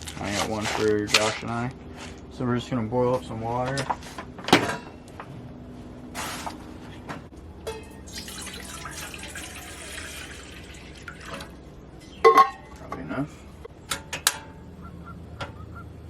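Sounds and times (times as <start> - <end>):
water pouring into a pot: 8.0 - 11.6.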